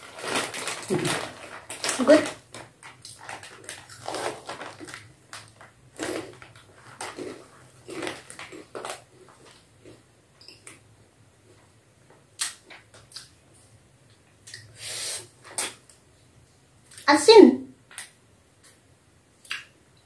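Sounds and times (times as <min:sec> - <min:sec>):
crunchy snack chewing: 0:00.1 - 0:10.7.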